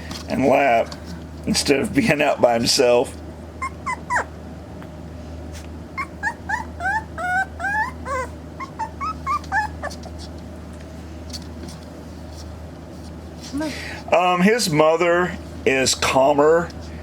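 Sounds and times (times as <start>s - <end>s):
puppy whimpering: 3.6s - 4.4s, 6.0s - 10.4s.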